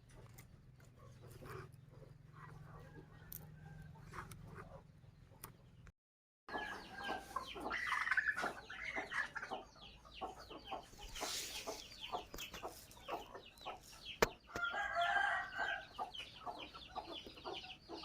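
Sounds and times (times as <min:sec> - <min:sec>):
nestling birds chirping: 0:06.5 - 0:18.0.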